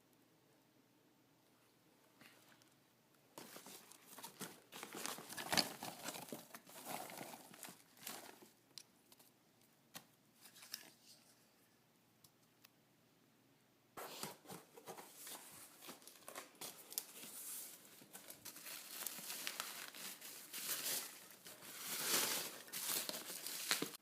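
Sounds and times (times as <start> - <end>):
packaging crinkling and tearing: 3.5 - 8.5, 15.2 - 24.0.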